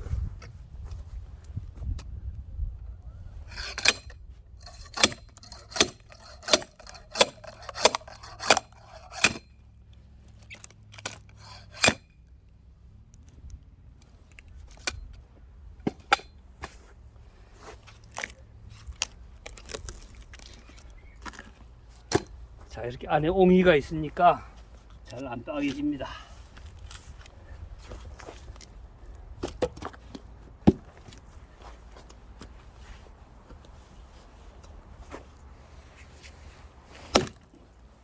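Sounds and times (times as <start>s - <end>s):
axe striking log: 4.9s - 9.5s, 22.1s - 22.4s, 30.6s - 31.0s, 37.0s - 37.4s.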